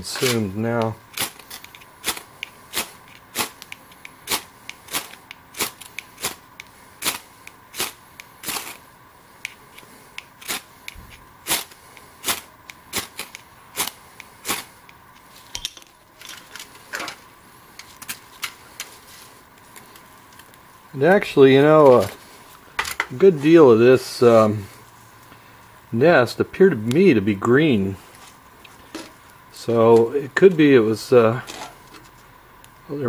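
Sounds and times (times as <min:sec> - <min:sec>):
burning twigs crackling: 0:00.0 - 0:32.9
sharp pops of fire: 0:00.2 - 0:15.0.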